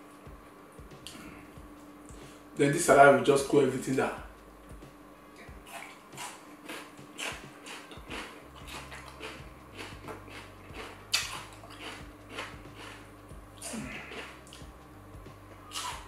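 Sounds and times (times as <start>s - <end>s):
crunchy wet chewing: 5.6s - 13.0s, 13.6s - 14.7s, 15.7s - 16.0s
sharp crunch of a bite: 5.7s - 13.0s, 15.7s - 16.0s.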